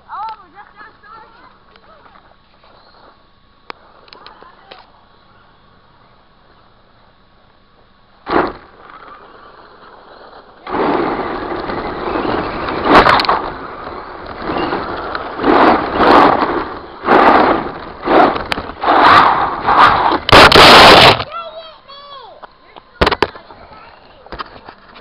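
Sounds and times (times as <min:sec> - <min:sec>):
rc truck driving over rough ground: 0:07.8 - 0:21.5, 0:22.8 - 0:25.0
rc truck motor surges: 0:08.2 - 0:21.3.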